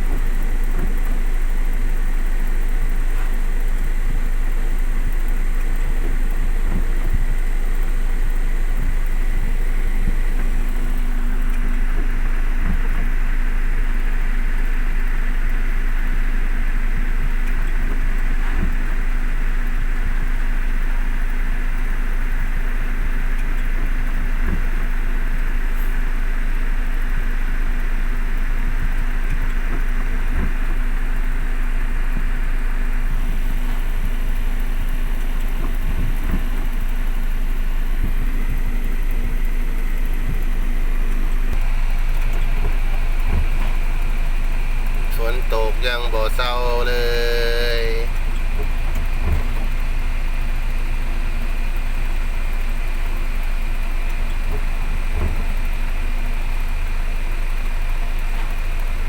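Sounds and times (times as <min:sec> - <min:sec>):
truck engine rumble: 0:00.0 - 0:59.0
heavy rain hissing: 0:31.6 - 0:55.0.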